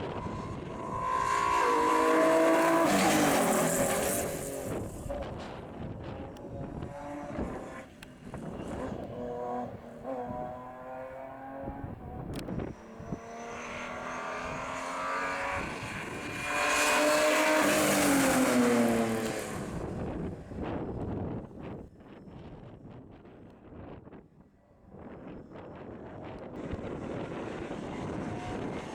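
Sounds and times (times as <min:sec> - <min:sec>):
rally car engine passing: 0:00.0 - 0:20.5, 0:26.5 - 0:28.9.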